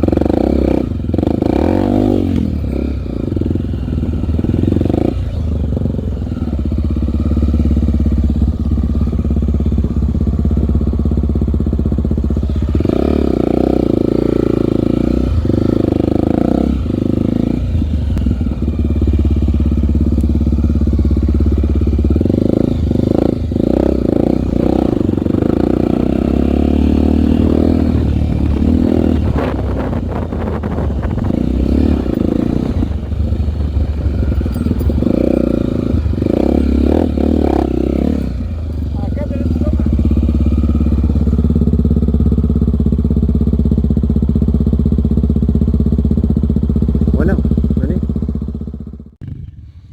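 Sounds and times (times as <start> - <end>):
motorcycle engine revving: 0.0 - 49.9
clatter: 27.0 - 47.9.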